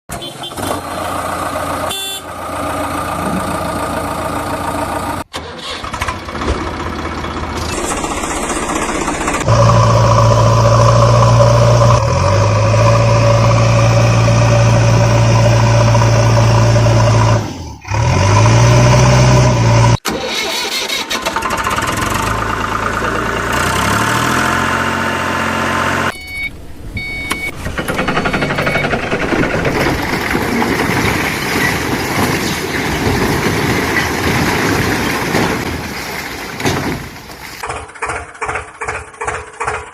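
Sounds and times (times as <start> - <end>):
diesel engine revving under load: 0.5 - 32.4.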